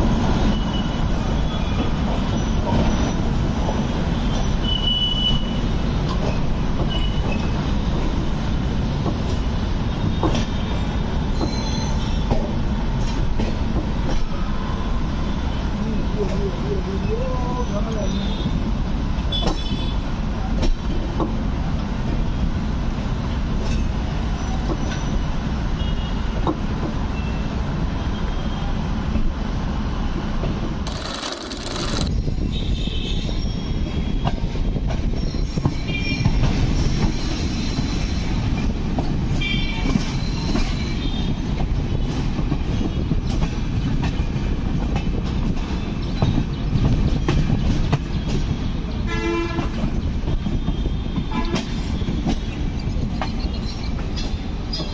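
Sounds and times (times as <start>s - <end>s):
train rumble: 0.0s - 28.0s, 28.8s - 54.9s
wheels clattering over rail joints: 30.6s - 32.2s.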